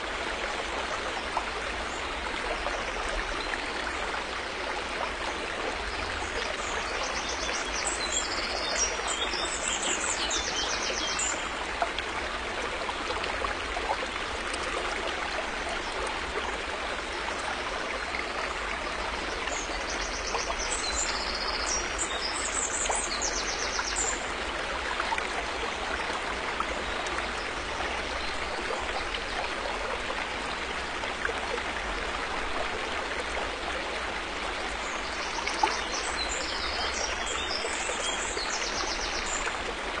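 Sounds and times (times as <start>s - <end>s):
river flowing: 0.0s - 40.0s.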